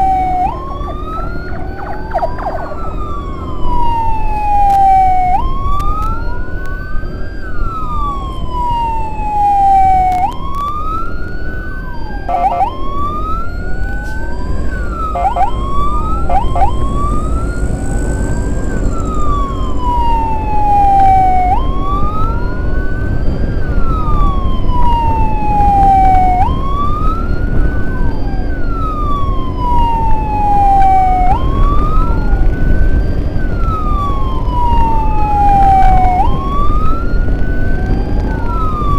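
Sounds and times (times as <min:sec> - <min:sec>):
electronic siren wailing: 0:00.0 - 0:38.9
vehicle engine and road rumble: 0:00.0 - 0:38.9
siren short yelps: 0:12.3 - 0:12.8, 0:15.0 - 0:15.6.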